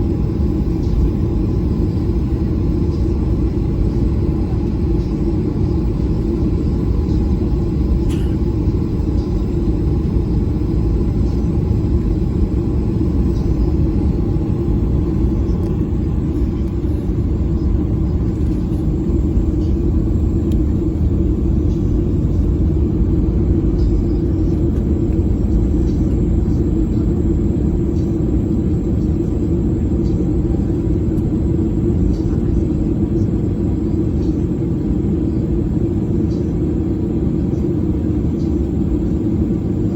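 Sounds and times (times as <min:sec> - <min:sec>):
jet engine rumble inside cabin: 0:00.0 - 0:39.9.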